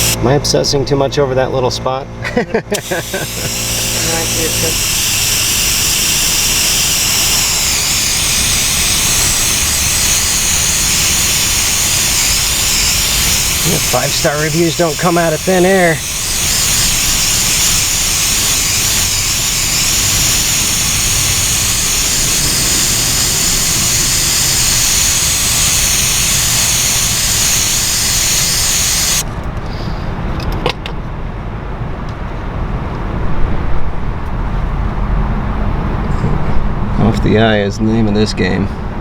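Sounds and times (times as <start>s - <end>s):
air spray gun hissing: 2.7s - 29.3s.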